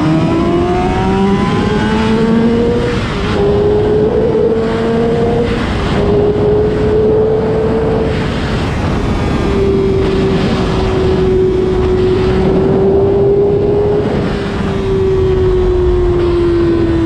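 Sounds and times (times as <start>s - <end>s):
motorcycle engine at high revs: 0.0s - 17.0s
wind rush: 0.0s - 17.0s.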